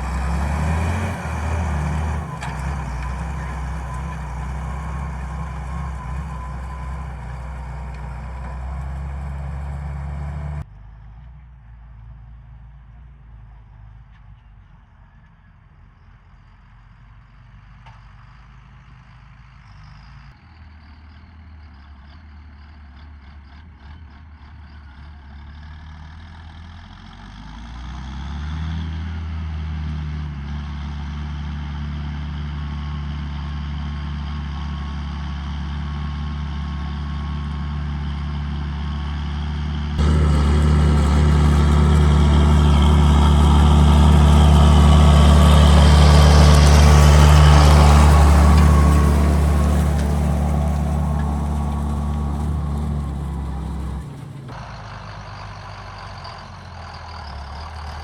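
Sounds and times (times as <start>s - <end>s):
tractor diesel engine running: 0.0s - 10.7s, 35.9s - 58.0s.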